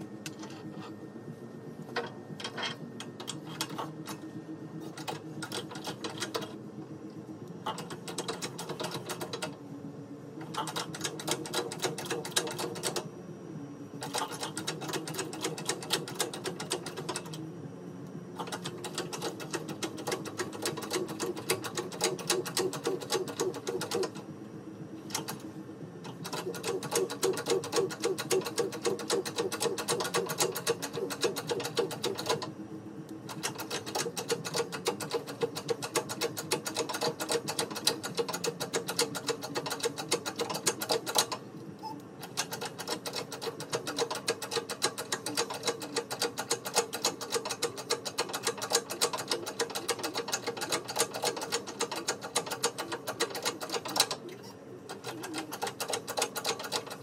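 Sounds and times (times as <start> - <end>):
fluctuating hum: 0.0 - 46.2
rapid mechanical clattering: 7.7 - 9.6, 10.4 - 13.0, 14.0 - 17.4, 18.4 - 24.2, 26.1 - 32.5, 33.3 - 41.4, 42.2 - 54.2, 54.9 - 57.0.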